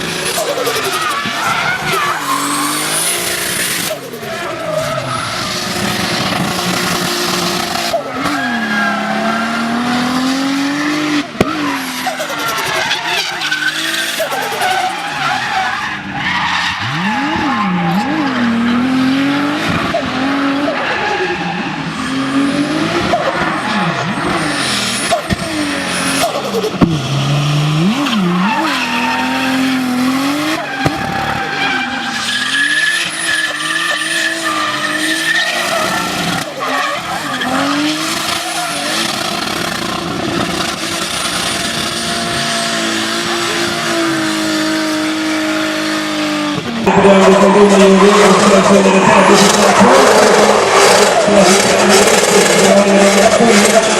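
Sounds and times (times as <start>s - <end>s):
car engine revving hard: 0.0s - 53.9s
tyres squealing: 11.5s - 18.6s, 28.1s - 39.6s.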